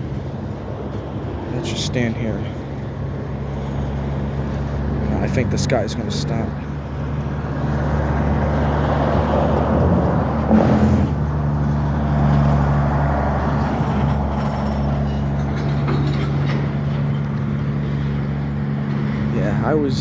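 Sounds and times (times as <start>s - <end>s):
droning hum: 0.0s - 20.0s
train wheels rumbling on rail: 0.0s - 20.0s.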